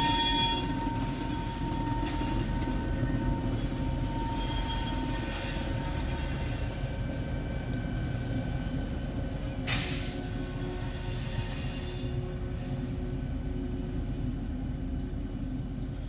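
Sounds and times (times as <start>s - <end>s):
freight train rumbling: 0.0s - 16.0s
train wheels squealing: 0.0s - 16.0s.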